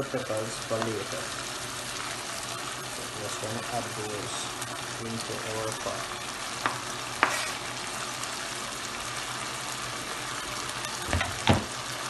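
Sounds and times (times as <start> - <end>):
chicken sizzling in a pot: 0.0 - 12.0
knife scraping a cutting board: 7.2 - 7.7.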